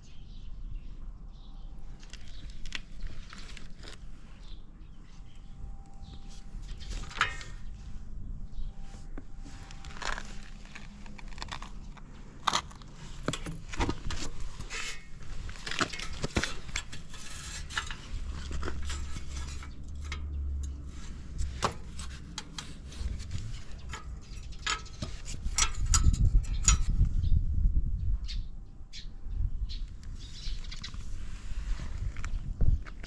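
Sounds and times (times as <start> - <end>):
metallic clicks and rattles: 12.5 - 26.9
low rumble: 22.9 - 24.4.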